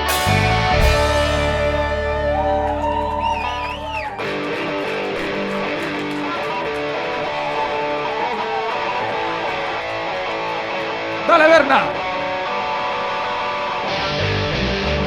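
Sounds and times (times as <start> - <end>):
bass and drums: 0.0 - 4.2
electric guitar lead: 0.0 - 15.0.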